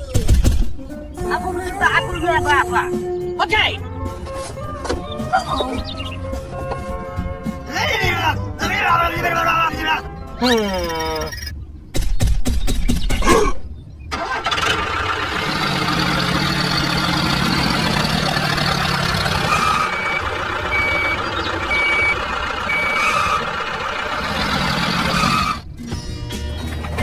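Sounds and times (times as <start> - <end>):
engine running: 14.1 - 25.8
reversing alarm beeping: 19.3 - 23.9.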